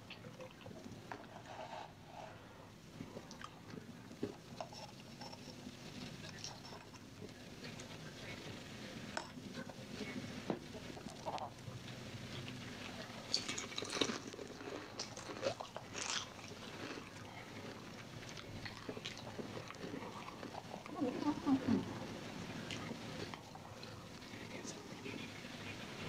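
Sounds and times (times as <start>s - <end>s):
person chewing food: 10.8s - 21.0s.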